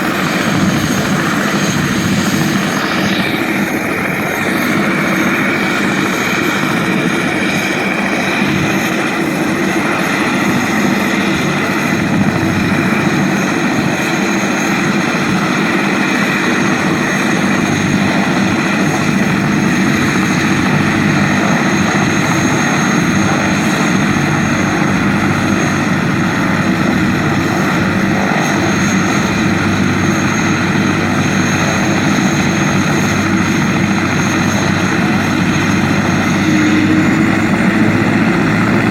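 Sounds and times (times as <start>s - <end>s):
helicopter rotor noise: 0.0s - 38.9s
turbine whine: 0.0s - 38.9s.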